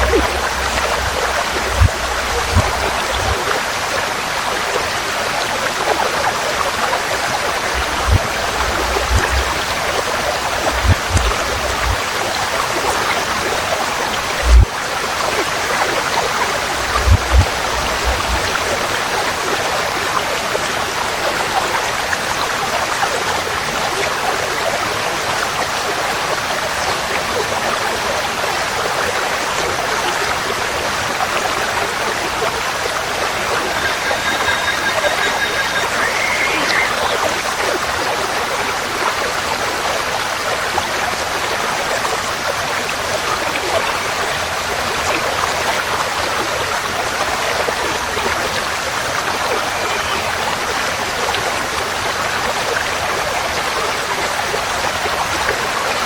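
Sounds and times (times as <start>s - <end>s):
low thumps: 0.0s - 3.4s, 7.7s - 9.8s, 10.5s - 12.0s, 14.4s - 14.7s
stream rushing: 0.0s - 56.0s
faint high tone: 33.0s - 37.5s.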